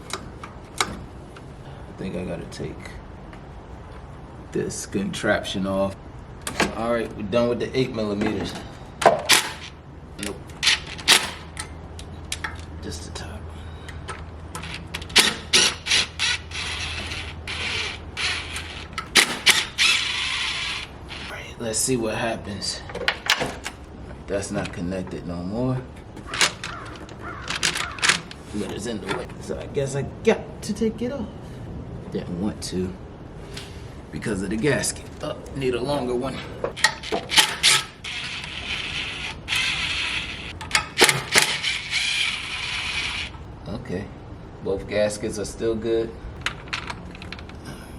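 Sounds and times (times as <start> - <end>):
hand tool rasping and creaking: 13.9 - 21.5, 26.0 - 29.3, 36.3 - 43.4.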